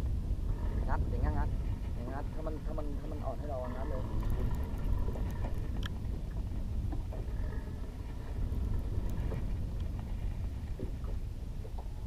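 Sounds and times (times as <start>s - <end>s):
boat engine rumble: 0.0s - 12.0s
faint clicks: 4.1s - 6.0s.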